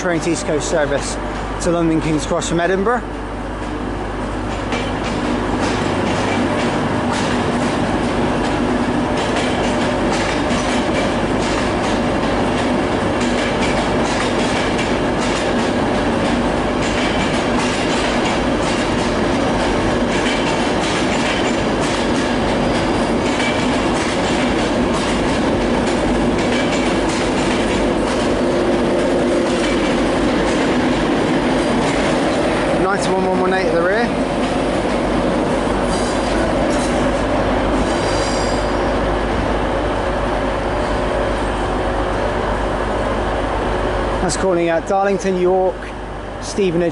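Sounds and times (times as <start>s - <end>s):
train coaches rolling past: 0.0s - 46.9s
wheels clicking over rail joints: 4.5s - 37.2s.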